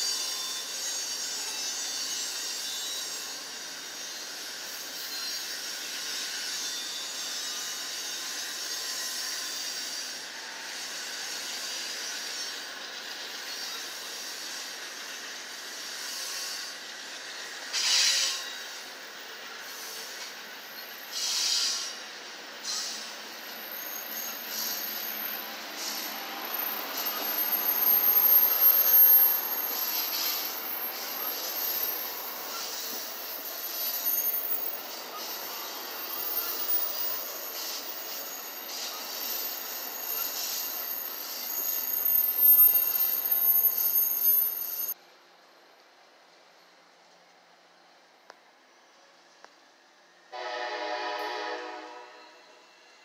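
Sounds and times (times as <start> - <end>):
train wheels squealing: 0.0 - 45.0, 50.3 - 53.0
steady high hiss: 10.7 - 53.0.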